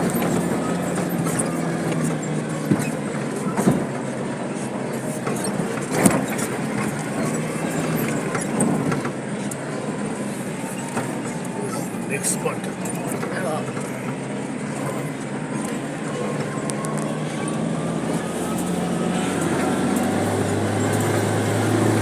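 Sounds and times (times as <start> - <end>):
vehicle engine hum: 0.0 - 22.0
vehicle jolting over bumps: 0.0 - 22.0.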